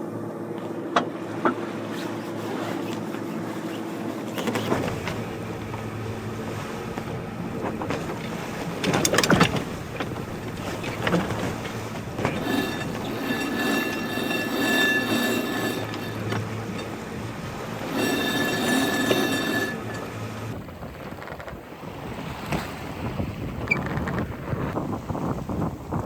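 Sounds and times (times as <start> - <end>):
sea noise: 0.0 - 26.0
wind: 0.0 - 26.0.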